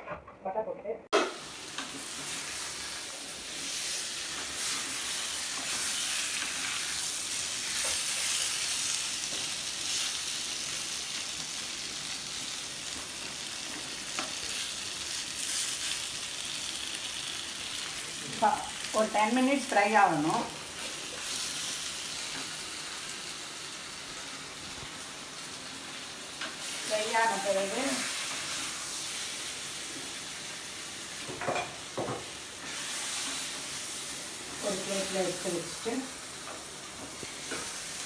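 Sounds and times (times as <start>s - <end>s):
chicken sizzling in butter: 1.2s - 38.0s.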